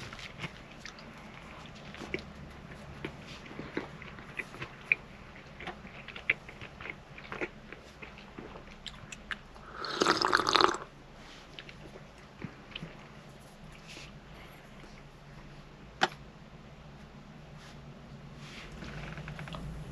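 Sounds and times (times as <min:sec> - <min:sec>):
person chewing food: 0:00.0 - 0:14.2.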